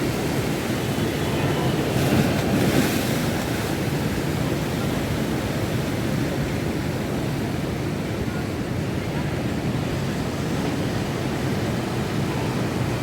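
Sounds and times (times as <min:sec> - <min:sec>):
waves breaking: 0:00.0 - 0:08.0.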